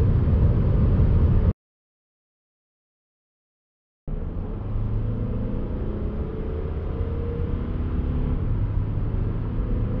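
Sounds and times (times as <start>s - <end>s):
diesel car engine accelerating: 4.1s - 10.0s.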